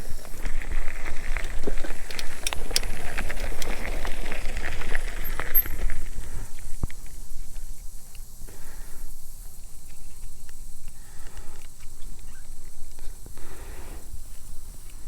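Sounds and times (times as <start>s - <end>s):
crackles and clicks: 0.0s - 8.3s.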